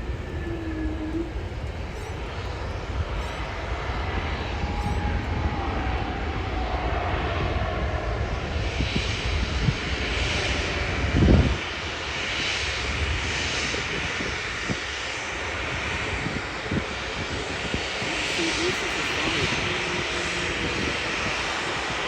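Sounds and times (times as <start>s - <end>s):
falling engine whine: 0.0s - 22.0s
jet engine rumble and hiss: 0.0s - 22.0s.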